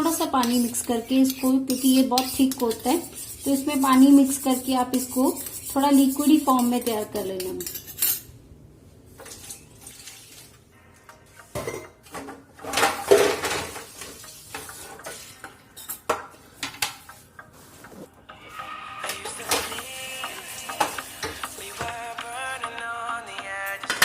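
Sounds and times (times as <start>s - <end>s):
kitchenware clinking and clattering: 4.9s - 8.4s, 9.1s - 10.7s, 11.4s - 17.4s, 19.3s - 19.8s, 23.7s - 24.0s.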